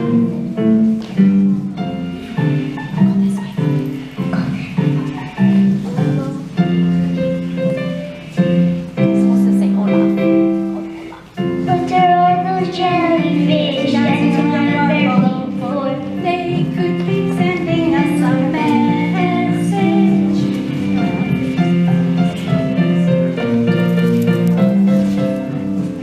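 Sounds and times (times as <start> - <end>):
instrumental accompaniment: 0.0 - 26.0.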